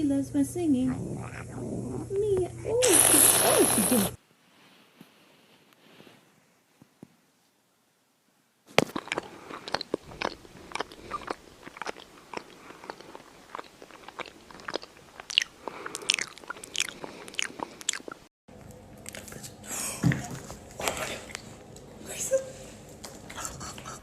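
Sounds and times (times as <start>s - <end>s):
crunchy chewing: 8.7s - 19.6s.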